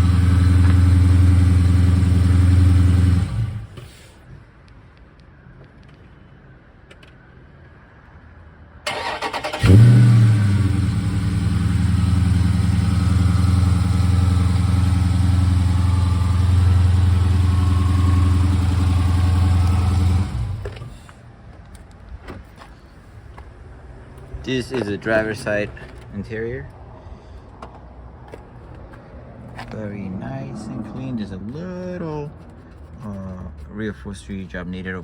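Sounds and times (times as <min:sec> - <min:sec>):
car engine revving and idling: 0:00.0 - 0:04.0, 0:09.4 - 0:21.1.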